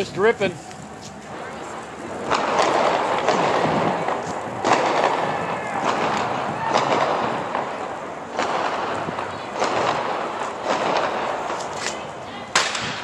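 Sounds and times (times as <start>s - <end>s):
burning car crackling: 0.0s - 13.0s
steady rushing noise: 0.0s - 13.0s
sharp pops: 2.2s - 13.0s.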